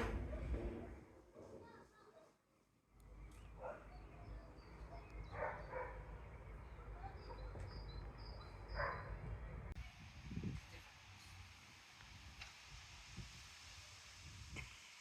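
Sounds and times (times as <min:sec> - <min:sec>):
dog barking: 0:03.6 - 0:04.1, 0:05.0 - 0:06.1, 0:08.7 - 0:09.2.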